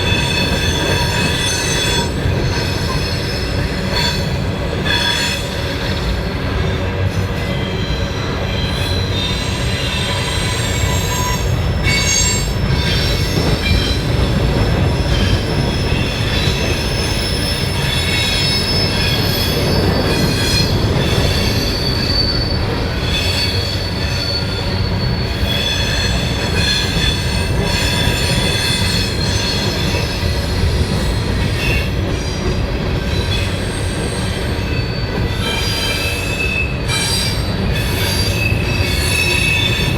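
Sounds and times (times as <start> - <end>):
train wheels rumbling on rails: 0.0 - 39.9
high-pitched wheel squeal: 7.6 - 14.0, 15.0 - 30.1, 33.3 - 39.9.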